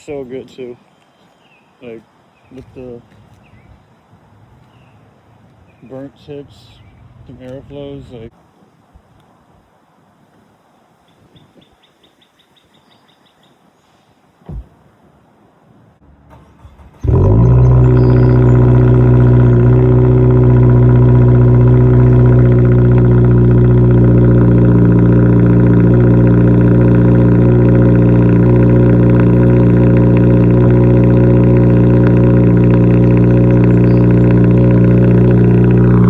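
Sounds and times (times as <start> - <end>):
car engine cranking and idling: 16.1 - 36.0.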